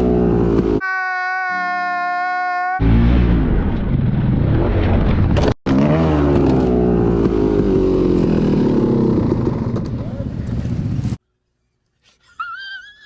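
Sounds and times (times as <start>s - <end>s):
dirt bike engine revving: 0.0s - 0.8s, 5.7s - 11.2s.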